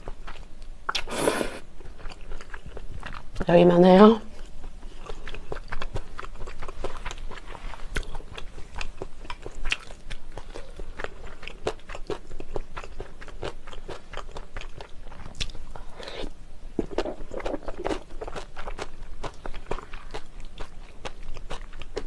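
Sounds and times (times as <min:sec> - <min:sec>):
chewing noodles: 0:00.0 - 0:03.4, 0:04.3 - 0:22.0
wet mouth clicks: 0:00.9 - 0:01.6.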